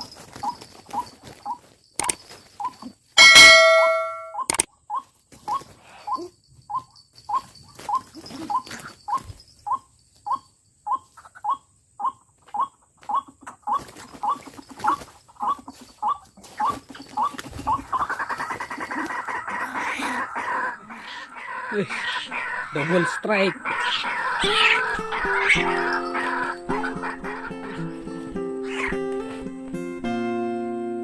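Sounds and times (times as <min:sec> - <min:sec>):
harsh grating bird chorus: 0:08.0 - 0:29.1.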